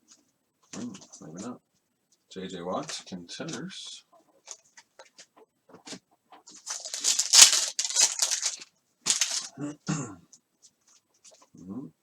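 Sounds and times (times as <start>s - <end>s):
crinkly rustling of cards: 6.5s - 9.5s.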